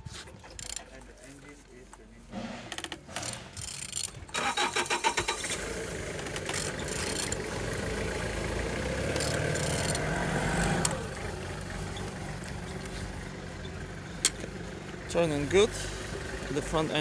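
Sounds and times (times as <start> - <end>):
engine starter cranking: 0.0 - 1.5, 2.3 - 17.0
car engine idling: 4.2 - 17.0.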